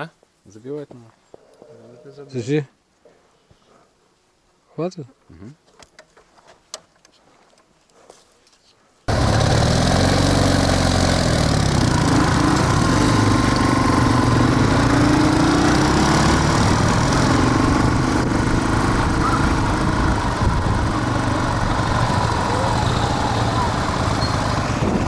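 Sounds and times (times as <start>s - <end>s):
motorcycle engine revving: 9.1s - 25.0s.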